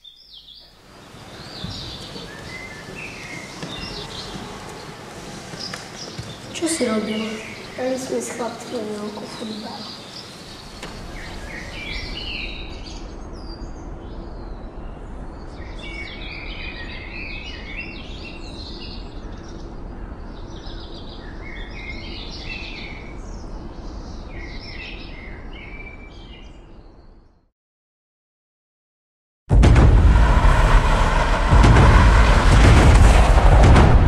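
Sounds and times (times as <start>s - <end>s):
small birds chirping and singing: 0.0s - 27.4s
low background noise: 0.1s - 24.5s.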